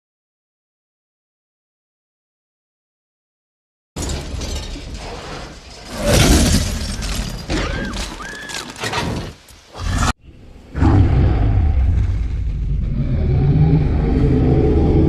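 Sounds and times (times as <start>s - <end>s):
dinosaur roar: 9.7s - 15.0s.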